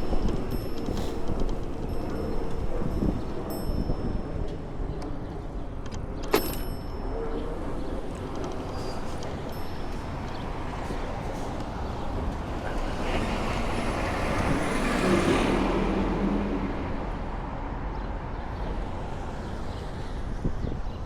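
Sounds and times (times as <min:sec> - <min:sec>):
steady road noise: 0:00.0 - 0:21.0
vehicle passing close by: 0:12.8 - 0:17.5.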